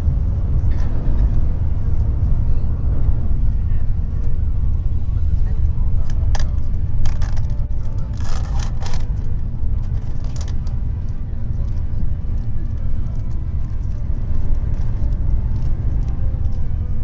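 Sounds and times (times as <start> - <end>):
train running low rumble: 0.0 - 17.0.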